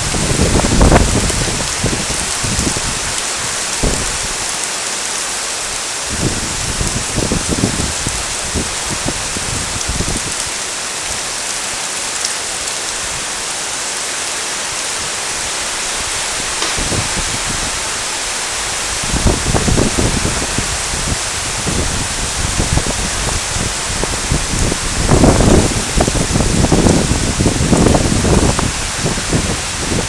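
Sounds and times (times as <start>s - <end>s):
heavy rain hissing: 0.0s - 30.0s
low rumbles and thumps: 16.6s - 17.9s.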